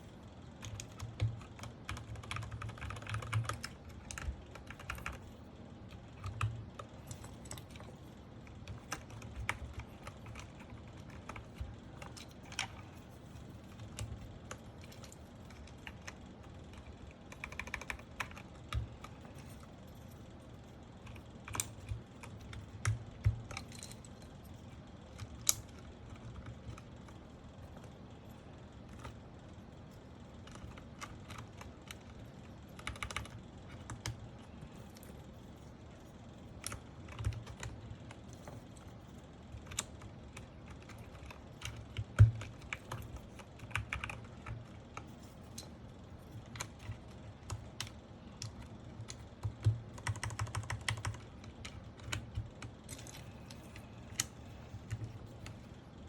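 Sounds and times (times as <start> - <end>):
keyboard parts clicking and knocking: 0.6 - 5.3, 5.9 - 20.2, 21.1 - 28.0, 39.6 - 55.8.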